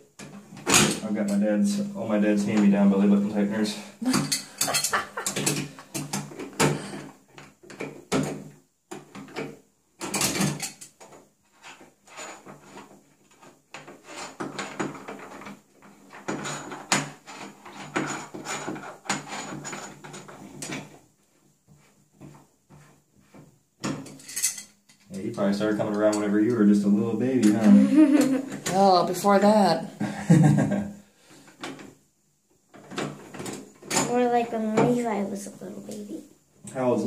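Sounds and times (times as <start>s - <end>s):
wrench clinking and scraping metal: 4.1s - 6.2s, 24.0s - 25.1s.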